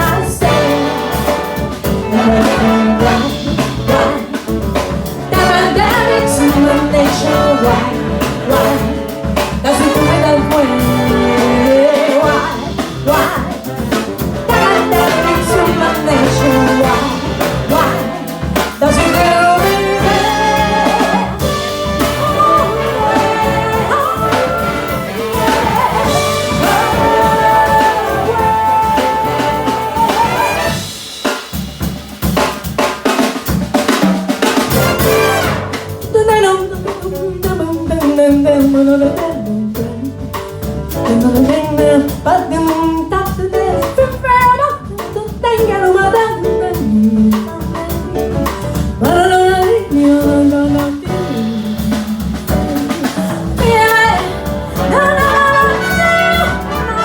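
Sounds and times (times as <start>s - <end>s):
trumpets and trombones: 0.0s - 4.6s, 5.3s - 13.5s, 14.2s - 31.0s, 34.6s - 36.0s, 53.9s - 57.0s
jazz big band playing: 0.0s - 57.0s.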